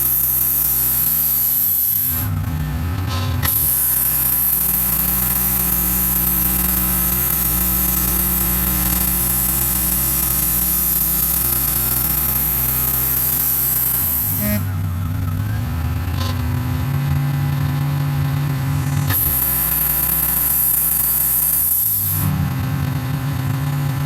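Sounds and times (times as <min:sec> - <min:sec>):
bandsaw mill sawing log: 0:00.0 - 0:24.0.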